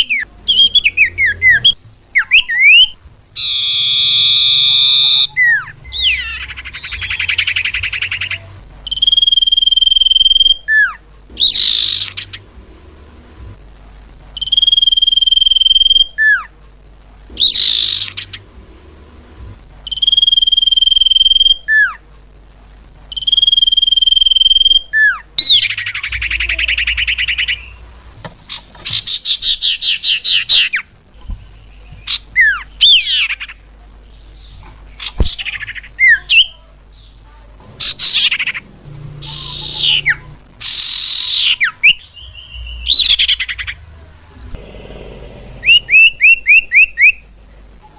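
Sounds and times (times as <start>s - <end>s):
bird whistles and trills: 0.1s - 12.4s, 17.4s - 18.4s, 39.2s - 43.7s, 45.6s - 47.2s.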